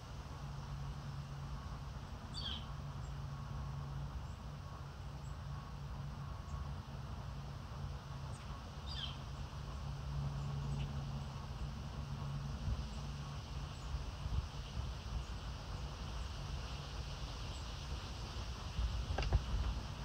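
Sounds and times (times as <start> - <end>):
low background hum: 0.0 - 20.0
bird chirping: 2.3 - 3.2, 8.3 - 9.4.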